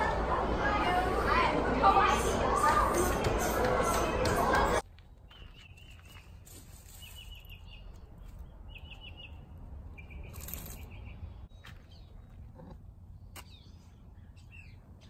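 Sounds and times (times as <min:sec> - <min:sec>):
songbird chirping: 0:04.8 - 0:12.4.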